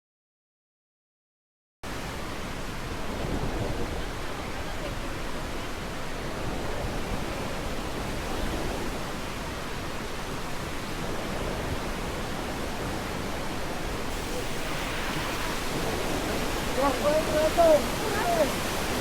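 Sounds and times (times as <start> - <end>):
steady rushing noise: 14.0 - 19.0.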